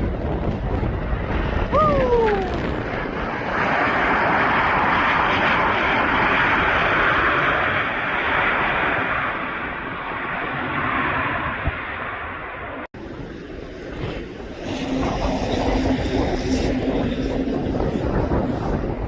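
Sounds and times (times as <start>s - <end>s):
wind buffeting microphone: 0.0s - 8.1s, 12.9s - 19.0s
aircraft engines passing: 0.0s - 19.0s.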